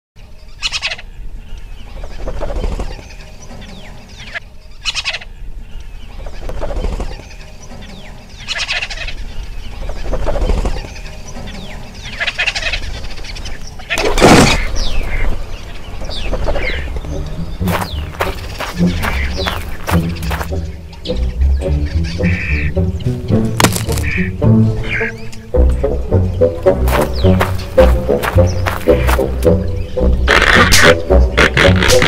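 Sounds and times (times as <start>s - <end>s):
fowl clucking: 17.6s - 20.7s, 23.6s - 32.0s
fowl rattling call: 17.7s - 20.5s, 23.6s - 25.2s, 26.8s - 32.0s.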